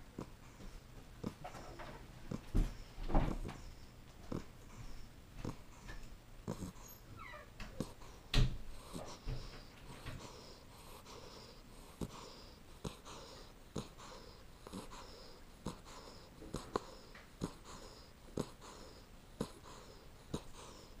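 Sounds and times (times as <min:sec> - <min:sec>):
puppy wheezy snoring: 0:00.0 - 0:21.0.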